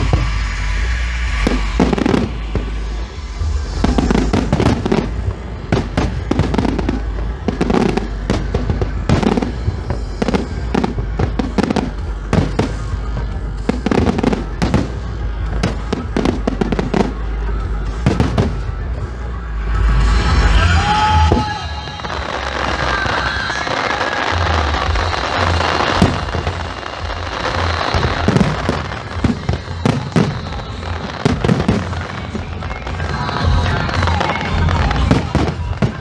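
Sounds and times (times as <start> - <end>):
low rumble: 0.0 - 23.6
fireworks bursting: 0.0 - 36.0.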